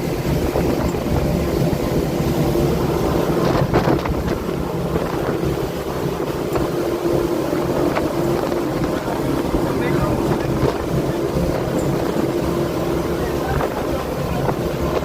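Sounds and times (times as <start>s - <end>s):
motorboat engine running: 0.0s - 15.0s
wind on microphone: 0.0s - 15.0s.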